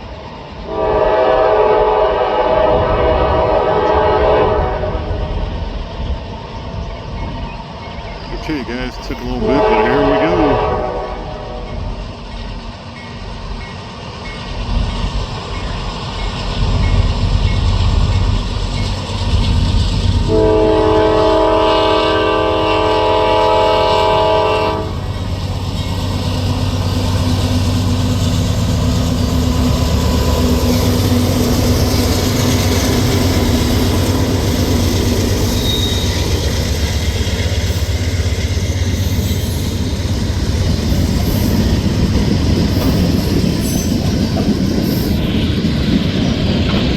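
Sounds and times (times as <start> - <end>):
train horn blast: 0.7 - 5.4, 8.5 - 11.9, 20.3 - 25.1
locomotive engine rumble: 5.5 - 21.6, 23.1 - 46.9
freight cars clattering on rails: 39.7 - 46.9.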